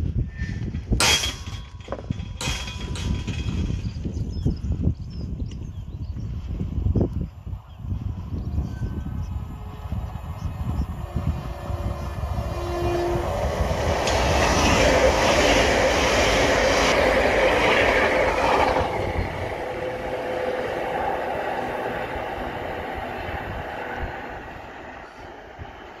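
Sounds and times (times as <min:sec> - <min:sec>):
train passing at speed: 0:07.4 - 0:26.0.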